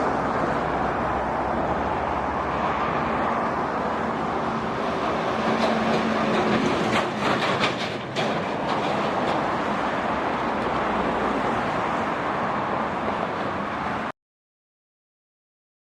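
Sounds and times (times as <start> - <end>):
heavy trucks passing: 0.0 - 14.1
rattling clanks: 5.4 - 9.6.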